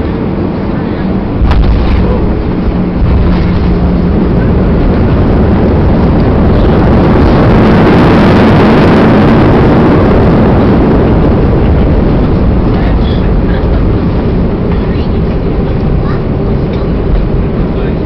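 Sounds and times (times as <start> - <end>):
jet engine rush in cabin: 0.0 - 18.0
wheel rumble: 0.0 - 18.0.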